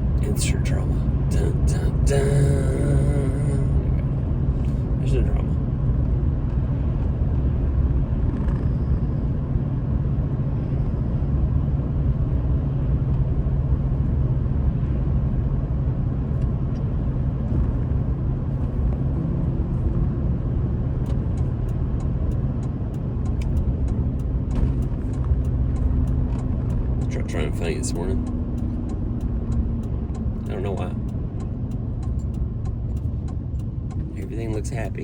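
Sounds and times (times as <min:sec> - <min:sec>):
truck engine and road rumble: 0:00.0 - 0:35.0
quick light ticks: 0:28.2 - 0:34.5.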